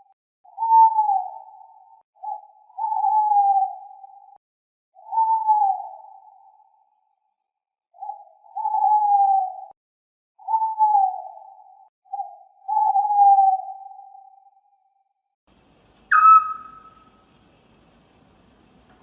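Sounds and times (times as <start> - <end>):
owl hooting: 0.5 - 4.4, 5.0 - 6.7, 8.0 - 9.7, 10.4 - 14.5, 15.9 - 17.5.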